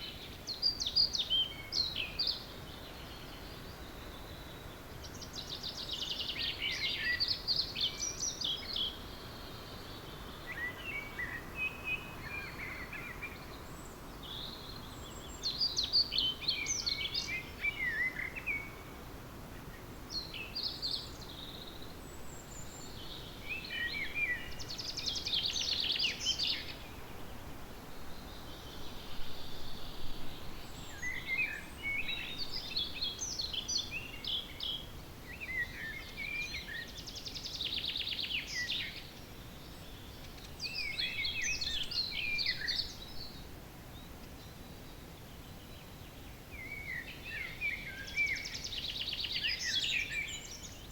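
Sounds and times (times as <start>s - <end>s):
songbirds singing: 0.0s - 50.9s
steady background hiss: 0.0s - 50.9s.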